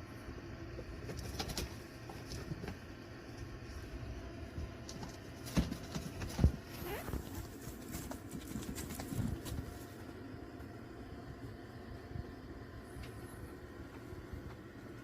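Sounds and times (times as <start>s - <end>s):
kittens' paws pattering: 1.0s - 10.2s.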